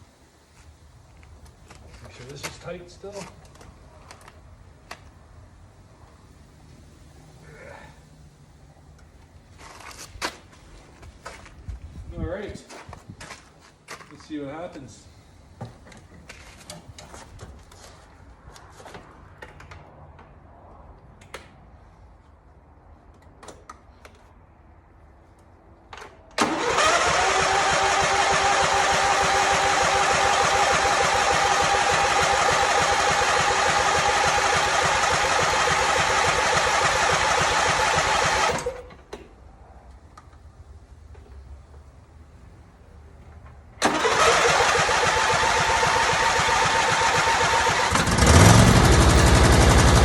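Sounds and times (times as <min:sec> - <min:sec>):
mower engine running: 0:26.4 - 0:38.8, 0:43.8 - 0:50.0
electric starter cranking engine: 0:26.4 - 0:38.9, 0:43.8 - 0:50.0.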